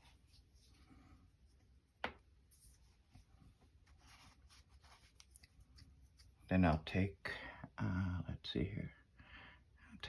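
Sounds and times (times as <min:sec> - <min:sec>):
brush strokes on paper: 0:02.5 - 0:06.5.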